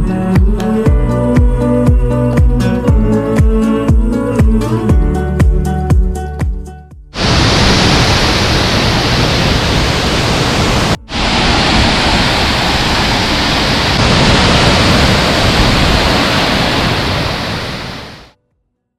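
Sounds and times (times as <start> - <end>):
waterfall roaring: 7.2 - 18.3.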